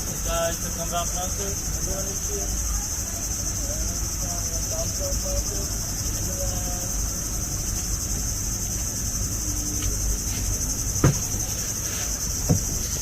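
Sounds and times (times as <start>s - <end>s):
high-pitched insect chorus: 0.0s - 13.0s
short knocks: 11.0s - 11.4s, 12.4s - 12.9s.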